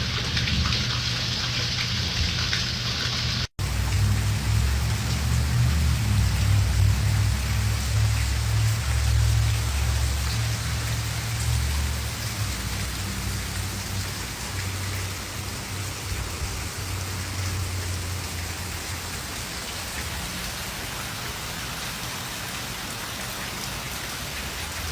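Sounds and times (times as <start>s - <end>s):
steady rain hiss: 2.4s - 24.9s
low rumble: 3.6s - 14.3s.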